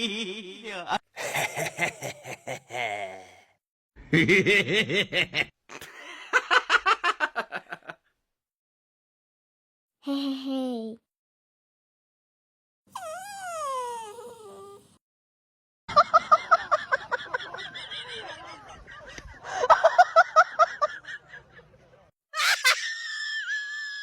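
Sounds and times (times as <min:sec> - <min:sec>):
dog whining: 0:12.9 - 0:15.0.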